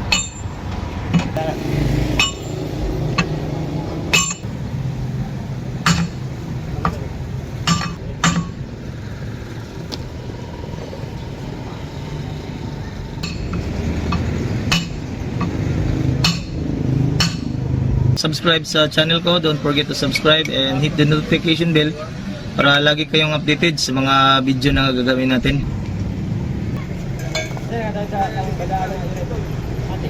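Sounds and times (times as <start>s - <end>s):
metal tool clinks and knocks: 2.2s - 3.4s, 4.1s - 4.5s, 27.1s - 27.7s.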